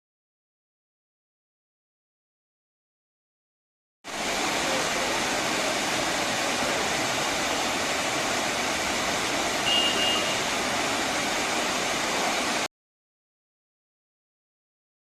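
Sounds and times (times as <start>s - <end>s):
waterfall roaring: 4.1s - 12.7s.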